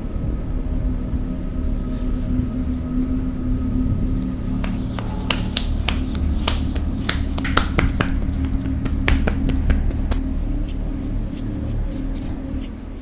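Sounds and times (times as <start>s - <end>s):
low steady hum: 0.0s - 13.0s
hands slapping in massage: 4.6s - 10.3s.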